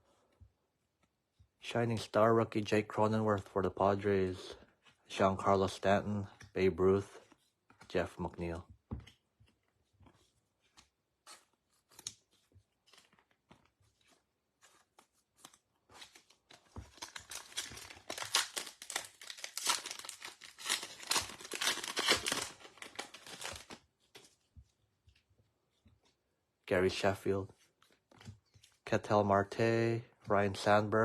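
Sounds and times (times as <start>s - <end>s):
foil wrapper tearing and crinkling: 16.0s - 23.8s.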